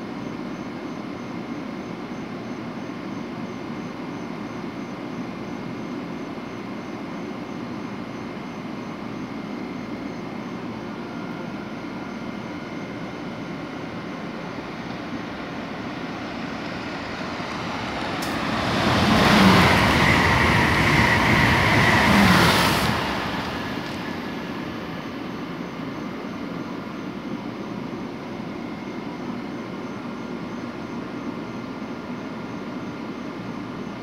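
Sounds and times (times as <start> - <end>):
train rushing past with whine: 0.0 - 34.0
electric train humming: 13.2 - 27.6.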